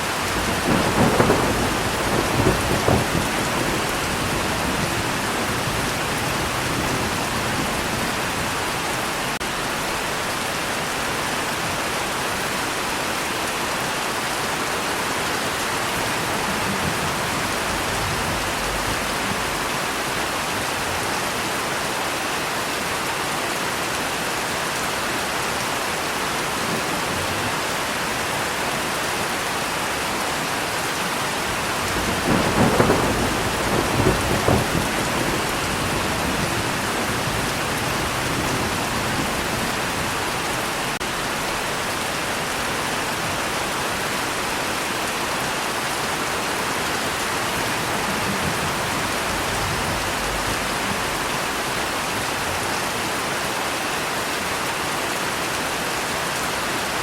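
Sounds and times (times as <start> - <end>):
rain falling: 0.0 - 57.0
thunder rumble: 0.1 - 9.9, 15.6 - 20.3, 31.4 - 41.7, 47.1 - 51.8.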